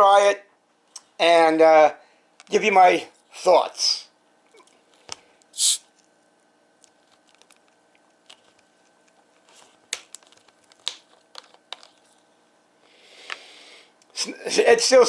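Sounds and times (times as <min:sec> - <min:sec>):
bottle cap hiss: 0:05.6 - 0:05.8
plastic bottle clicks and crinkles: 0:09.9 - 0:12.0.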